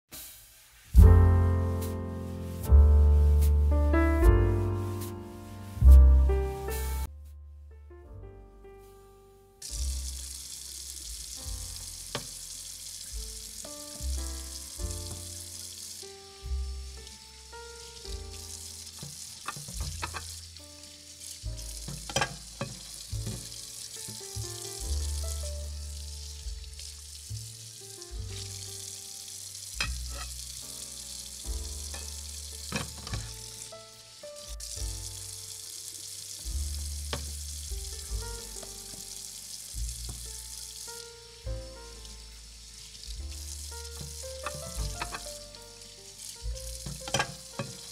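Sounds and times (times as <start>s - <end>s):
onion sizzling in a saucepan: 0.0s - 7.0s, 9.6s - 47.9s
music with stepping bass line: 1.0s - 7.4s
utensils clicking against pan: 19.0s - 20.4s, 21.9s - 23.0s, 29.8s - 30.4s, 31.9s - 33.4s, 44.0s - 45.4s, 46.8s - 47.9s.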